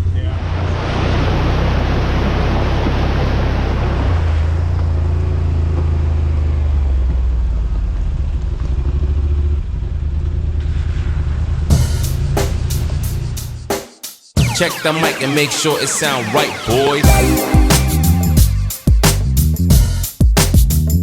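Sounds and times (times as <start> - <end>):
loud rushing noise: 14.4 - 19.2.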